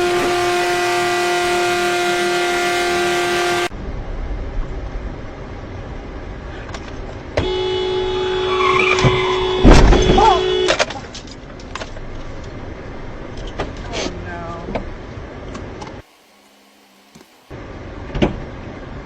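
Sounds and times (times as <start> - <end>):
car horn long blast: 0.0 - 3.7, 7.4 - 10.8
car engine: 0.0 - 19.0
road noise: 0.0 - 19.0.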